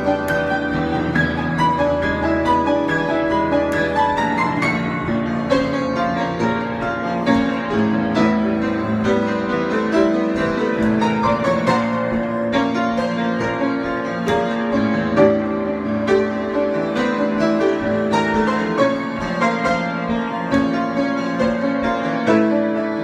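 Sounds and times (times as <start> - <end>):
solo piano: 0.0 - 23.0.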